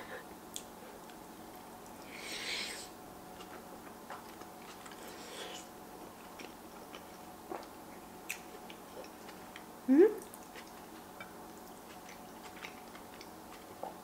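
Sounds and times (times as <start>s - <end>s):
wet chewing with clicks: 3.4s - 5.1s, 6.1s - 14.0s.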